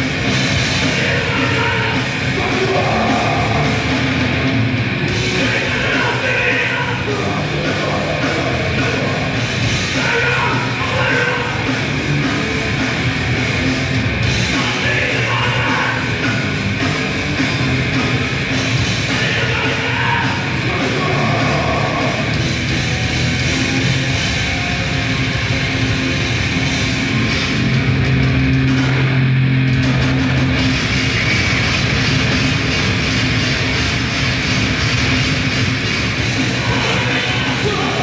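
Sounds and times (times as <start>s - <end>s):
loud live metal band: 0.0s - 38.0s.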